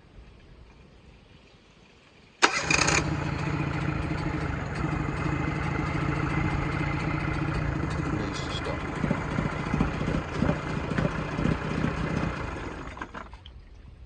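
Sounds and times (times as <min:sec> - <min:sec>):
outboard motor starting and running: 0:02.4 - 0:13.7.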